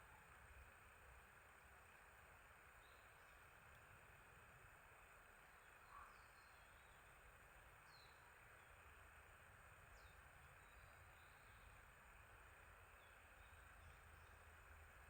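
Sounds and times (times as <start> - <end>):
low outdoor ambient hiss: 0.0 - 15.0
small birds chirping: 2.7 - 3.5, 5.3 - 9.0, 9.8 - 15.0.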